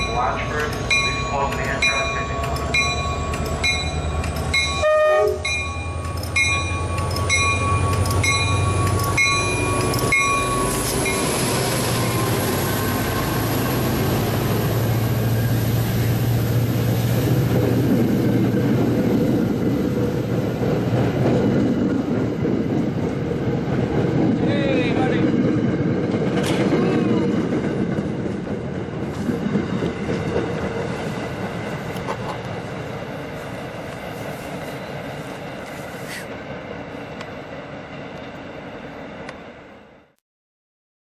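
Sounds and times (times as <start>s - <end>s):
station bell clanging: 0.0s - 15.0s
train rushing past: 0.0s - 40.2s.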